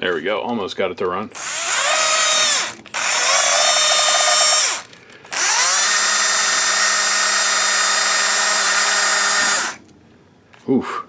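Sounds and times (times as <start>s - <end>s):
cordless drill whining: 1.3s - 9.8s.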